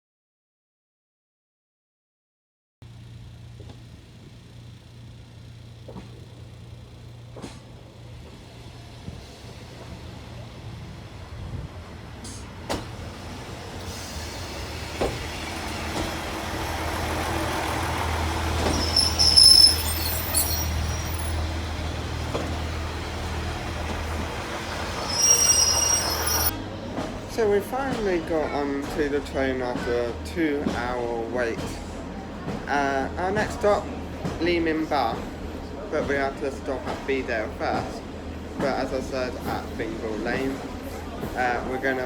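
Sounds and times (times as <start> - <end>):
train engine rumble: 2.8 - 42.0
high-pitched brake squeals: 18.6 - 21.4, 24.9 - 26.5.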